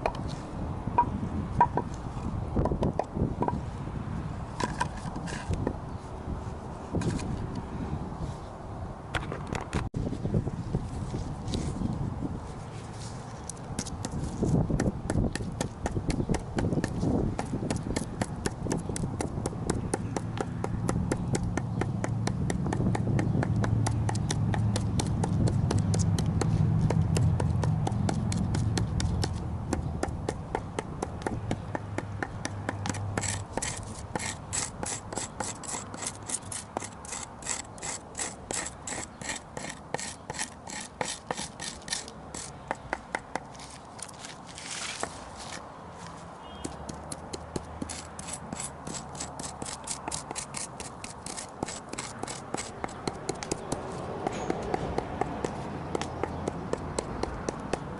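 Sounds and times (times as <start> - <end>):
hand tool scraping charred wood: 4.6 - 5.7, 12.9 - 45.6, 47.8 - 57.9.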